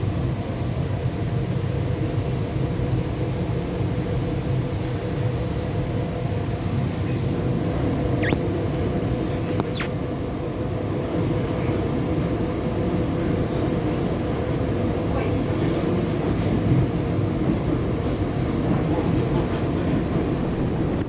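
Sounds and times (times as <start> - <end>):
train rumbling: 0.0 - 21.0
short high squeaks: 8.2 - 8.4, 9.6 - 10.0.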